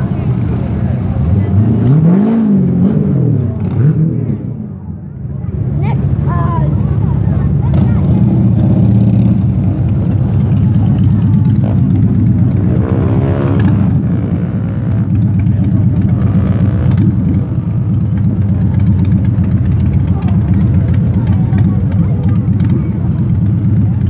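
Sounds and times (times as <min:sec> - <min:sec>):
sports car engines running: 0:00.0 - 0:24.0
car engine revving: 0:01.0 - 0:04.5, 0:07.6 - 0:18.4.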